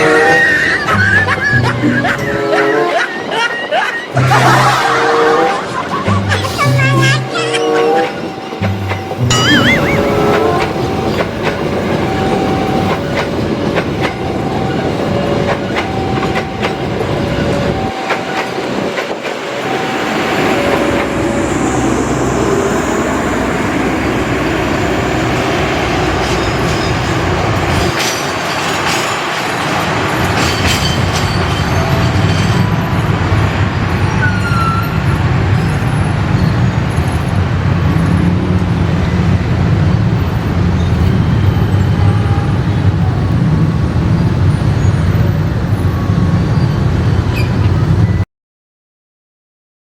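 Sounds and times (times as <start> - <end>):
train wheels clattering on rails: 0.0 - 48.2
two alternating tones: 4.1 - 27.9.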